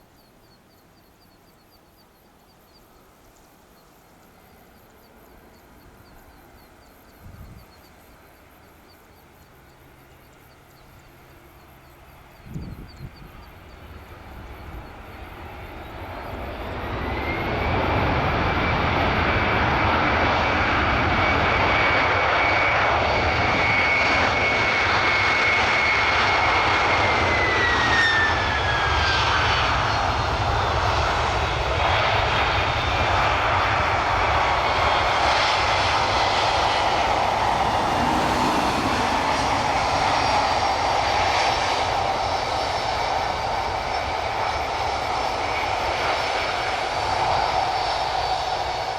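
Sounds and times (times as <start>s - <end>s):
jet airliner passing overhead: 0.0s - 48.9s
high engine whine dropping in pitch: 29.5s - 45.6s.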